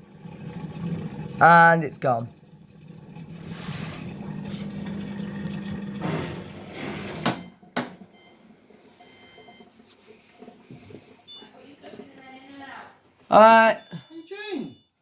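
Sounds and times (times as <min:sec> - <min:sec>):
washing machine pump humming: 0:00.0 - 0:12.3
electronic beeps: 0:08.2 - 0:09.7, 0:11.3 - 0:11.5, 0:13.5 - 0:15.0.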